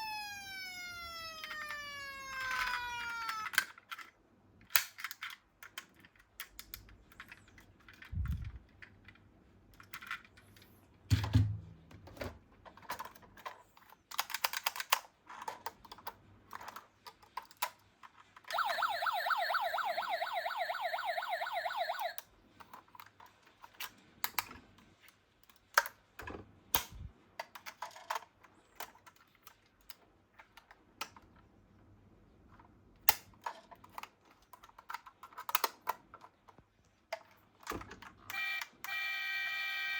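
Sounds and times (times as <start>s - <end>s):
electronic toy siren warbling: 0.0s - 3.6s, 18.5s - 22.2s, 38.3s - 39.9s
toy cars clicking and clattering: 1.2s - 10.4s, 12.6s - 18.6s, 27.4s - 31.3s, 32.5s - 38.2s.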